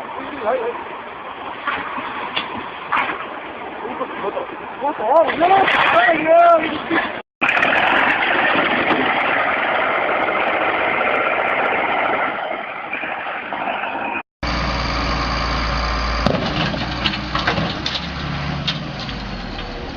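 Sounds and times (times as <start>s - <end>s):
construction machinery engines: 12.9s - 19.9s.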